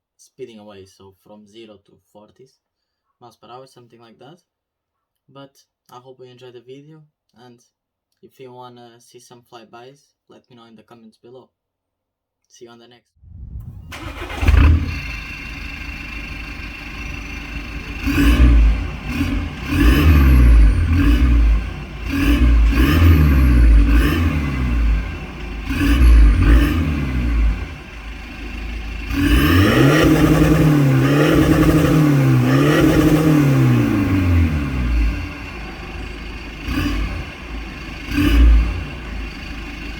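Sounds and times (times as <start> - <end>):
diesel car engine revving: 13.5 - 39.9.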